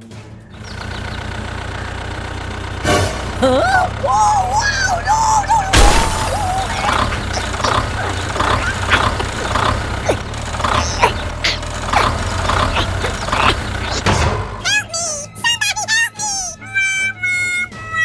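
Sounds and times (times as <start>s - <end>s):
small motor humming: 0.6s - 14.3s.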